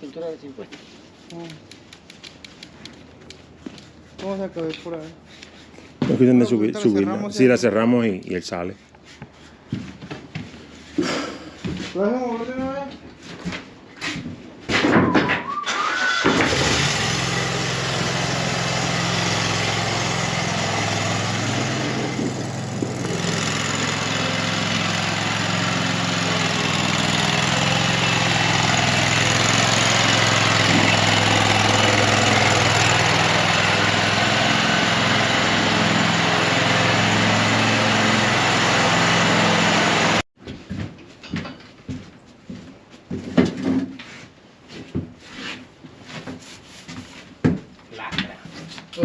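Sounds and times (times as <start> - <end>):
engine idling: 16.5 - 40.2.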